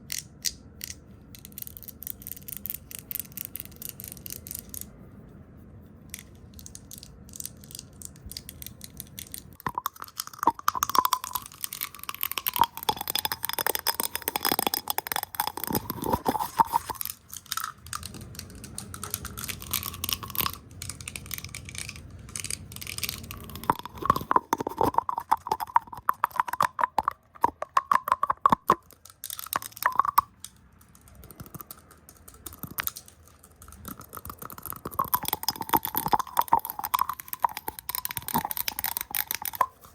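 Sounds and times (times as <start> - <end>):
tapping: 8.0 - 17.1, 20.1 - 39.8.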